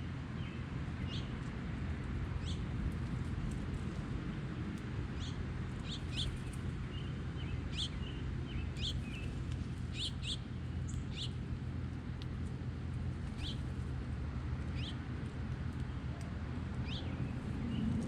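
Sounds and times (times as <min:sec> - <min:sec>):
steady low rumble: 0:00.0 - 0:18.0
songbirds chirping: 0:05.1 - 0:18.0.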